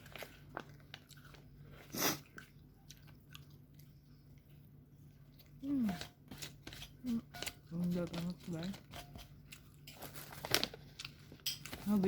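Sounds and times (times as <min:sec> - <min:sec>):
chewing with wet mouth clicks: 0:02.2 - 0:04.6.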